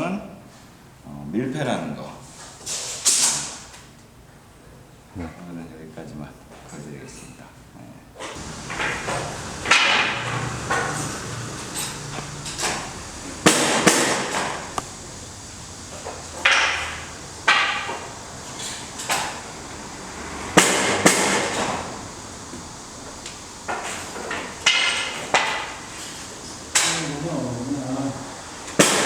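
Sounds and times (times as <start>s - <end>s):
ringing knocks and clatter: 8.4s - 14.8s.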